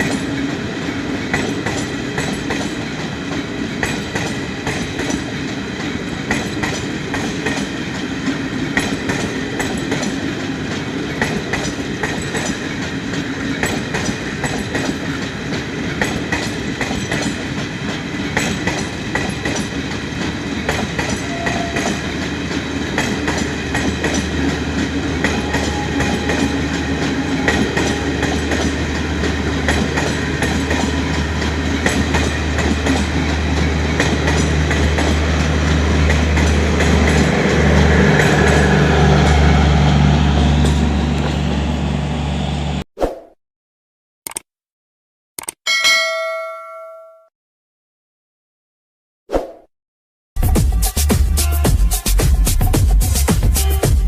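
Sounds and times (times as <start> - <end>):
train wheels clacking on rails: 0.0 - 39.6.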